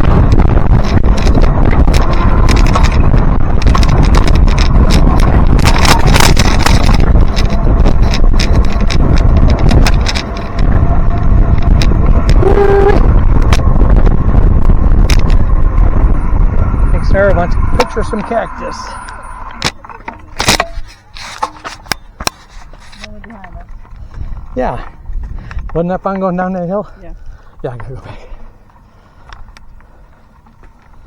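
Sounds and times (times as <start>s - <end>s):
bicycle clicks and rattles: 0.0s - 31.0s
wind buffeting microphone: 0.0s - 31.0s
short pitched tone: 12.1s - 13.2s.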